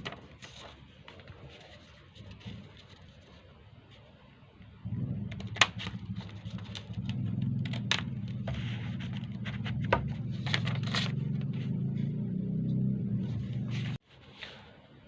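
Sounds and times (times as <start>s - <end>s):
paper crackling and crinkling: 0.0s - 4.0s, 5.4s - 11.1s
steady low hum: 0.0s - 14.1s.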